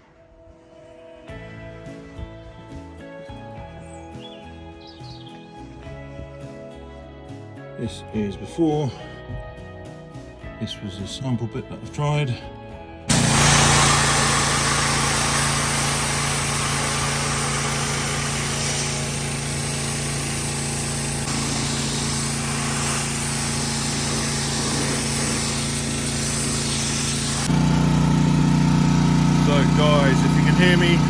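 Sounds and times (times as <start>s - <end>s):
pressure washer machine hum: 13.1s - 31.0s
pressure washer water jet hiss: 13.1s - 31.0s.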